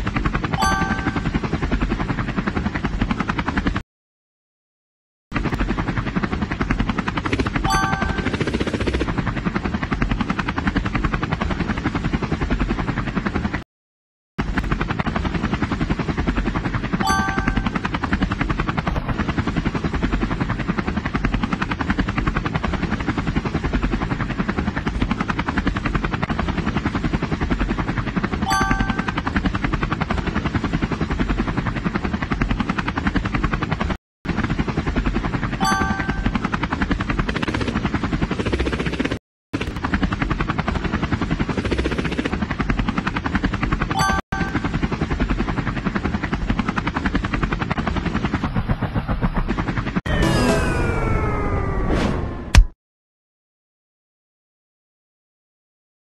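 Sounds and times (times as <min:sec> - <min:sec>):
helicopter rotor blades chopping: 0:00.0 - 0:03.8, 0:05.3 - 0:13.6, 0:14.4 - 0:52.7
short chiming tone: 0:00.6 - 0:01.3, 0:07.6 - 0:08.4, 0:17.1 - 0:17.8, 0:28.5 - 0:29.2, 0:35.6 - 0:36.4, 0:50.1 - 0:51.7.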